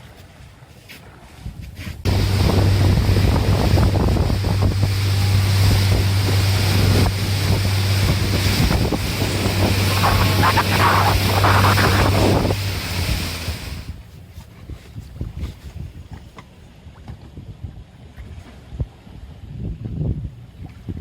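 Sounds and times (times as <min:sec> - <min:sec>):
wind on microphone: 0:01.4 - 0:16.2, 0:17.0 - 0:21.0
water noise: 0:02.0 - 0:14.1
motorboat engine humming: 0:02.1 - 0:14.2.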